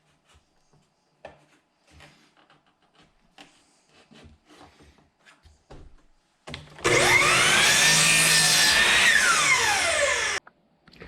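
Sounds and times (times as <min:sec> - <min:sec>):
table saw whining: 0:06.8 - 0:10.4.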